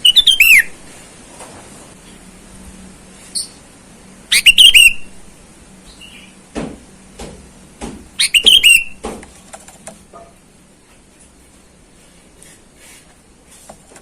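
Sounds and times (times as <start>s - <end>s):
bird singing whistled notes: 0.0s - 0.7s, 4.3s - 5.1s, 5.9s - 6.4s, 8.2s - 9.0s.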